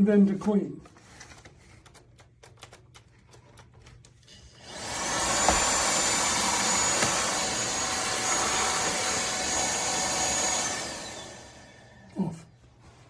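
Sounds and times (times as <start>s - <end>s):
vacuum motor whining: 4.6s - 12.1s.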